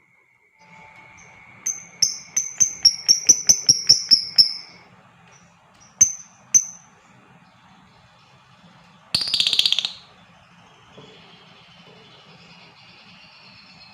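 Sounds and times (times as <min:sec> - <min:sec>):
lovebird shrill chirps: 0:01.2 - 0:04.8, 0:05.8 - 0:06.9, 0:09.2 - 0:10.1.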